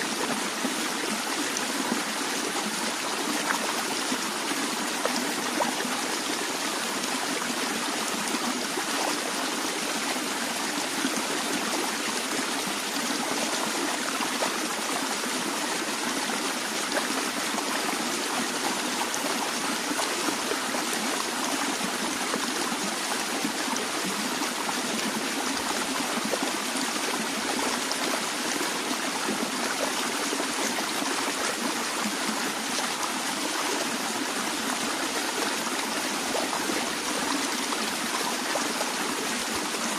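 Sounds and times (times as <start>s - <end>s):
stream of water flowing: 0.0s - 39.9s.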